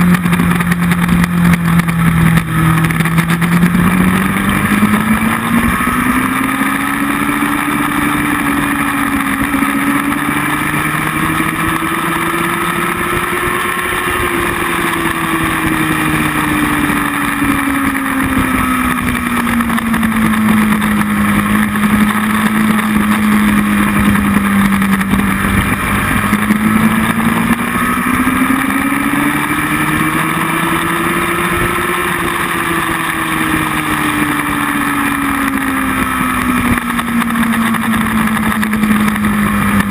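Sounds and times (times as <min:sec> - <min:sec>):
motorcycle engine running: 0:00.0 - 0:39.9
wind rushing on microphone: 0:00.0 - 0:39.9.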